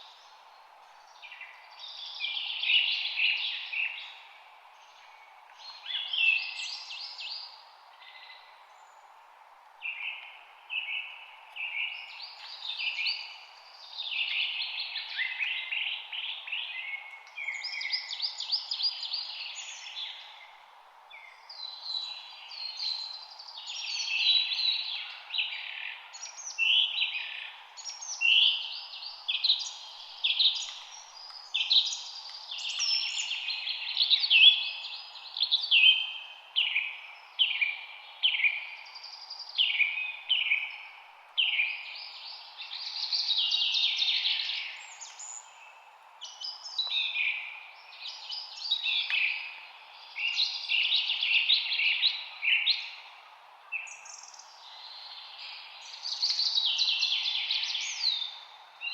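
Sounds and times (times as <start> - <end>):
birds singing: 9.8 - 58.9.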